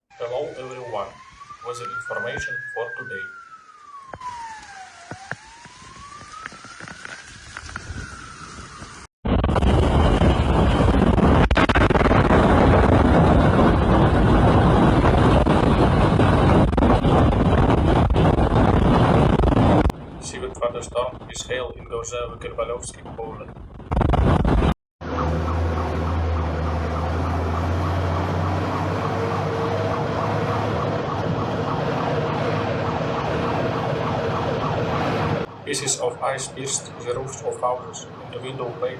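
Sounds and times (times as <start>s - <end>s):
electronic alarm tone: 0.1s - 6.4s
wind buffeting microphone: 0.9s - 24.7s, 25.3s - 37.2s.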